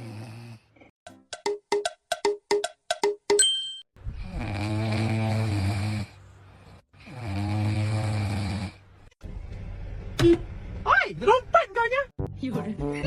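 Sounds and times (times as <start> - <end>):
pet snoring: 0.0 - 0.9, 4.2 - 8.8.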